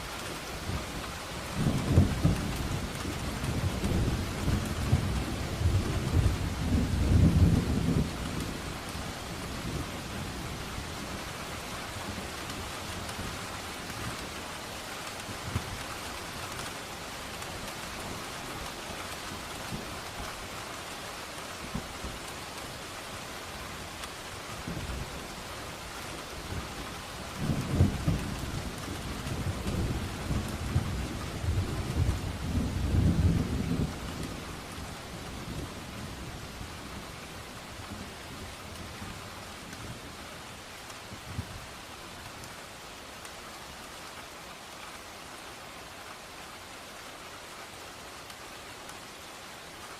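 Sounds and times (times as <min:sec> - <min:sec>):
rain falling: 0:00.0 - 0:49.9
thunder rumbling: 0:26.5 - 0:34.8.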